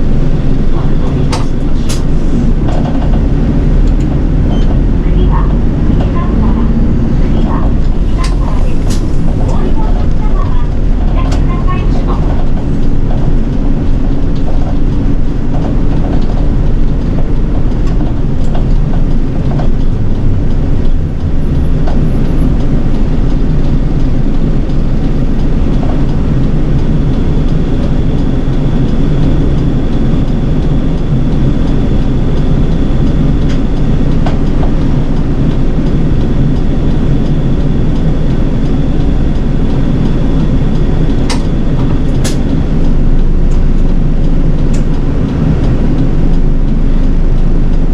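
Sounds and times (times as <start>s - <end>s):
bus engine and road rumble: 0.0s - 47.9s
sharp clicks: 41.2s - 47.2s.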